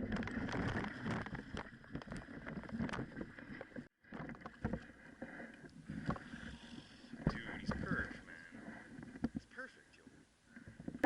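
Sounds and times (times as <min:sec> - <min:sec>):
water splashing: 0:00.0 - 0:09.8.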